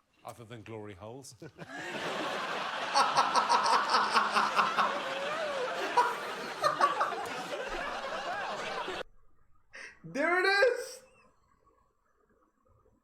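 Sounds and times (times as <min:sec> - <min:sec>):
studio audience laughing: 0:01.4 - 0:09.0
person laughing in rhythmic pulses: 0:02.9 - 0:09.0.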